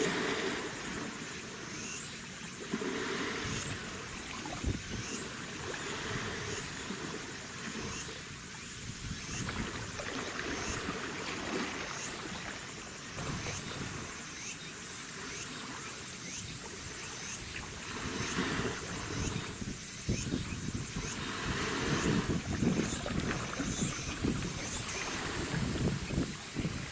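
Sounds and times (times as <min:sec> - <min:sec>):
water sloshing and lapping: 0:00.0 - 0:26.9
wind buffeting microphone: 0:18.1 - 0:26.9.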